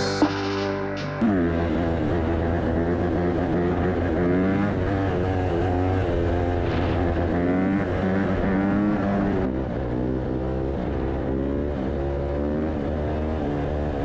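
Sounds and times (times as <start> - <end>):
dirt bike engine revving: 0.0 - 9.5.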